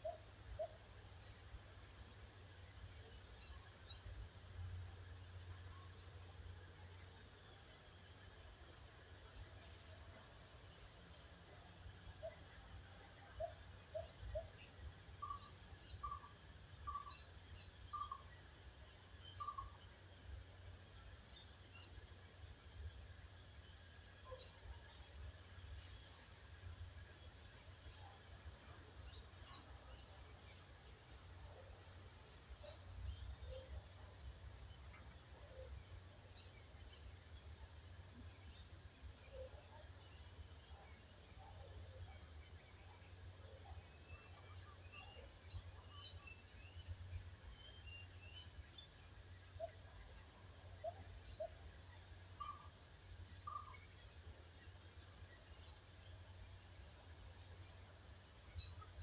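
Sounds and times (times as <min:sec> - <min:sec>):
faint high chirps: 0:13.2 - 0:20.4, 0:38.2 - 0:59.0
faint birds calling: 0:13.3 - 0:18.3, 0:19.2 - 0:19.8, 0:49.5 - 0:53.9.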